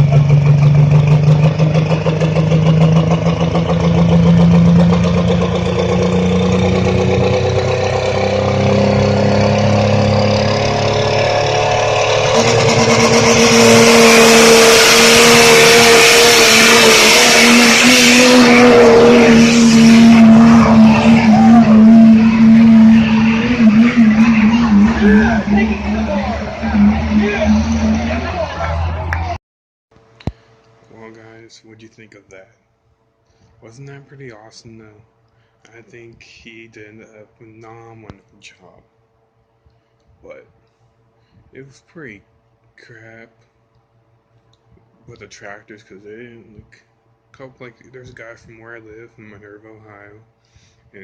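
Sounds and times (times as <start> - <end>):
truck engine running under load: 0.0 - 13.9.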